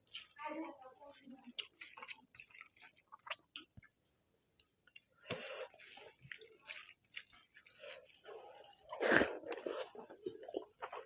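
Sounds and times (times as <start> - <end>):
chewing and smacking: 0.0 - 0.4, 1.2 - 4.0, 4.6 - 11.0
wet mouth clicks: 9.1 - 9.7.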